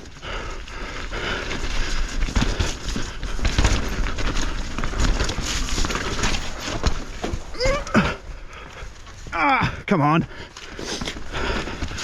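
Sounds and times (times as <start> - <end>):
bike frame and chain clicking: 1.4 - 9.2
tyres thumping on roots and rocks: 2.2 - 8.1.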